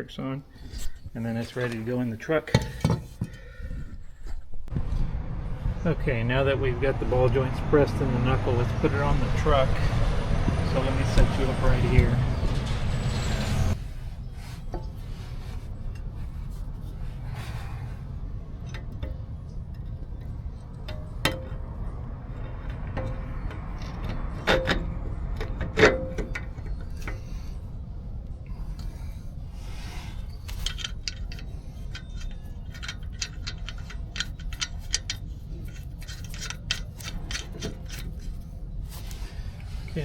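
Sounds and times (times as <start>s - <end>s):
steady low hum: 0.0s - 40.0s
metal parts clanking: 18.5s - 27.6s, 30.3s - 39.2s
light metal clicks and clinks: 30.4s - 38.5s.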